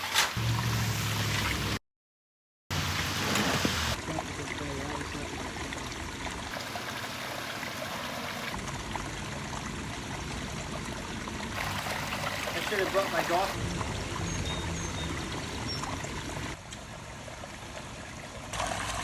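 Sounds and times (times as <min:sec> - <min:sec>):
waterfall splashing over rock: 0:11.6 - 0:13.6.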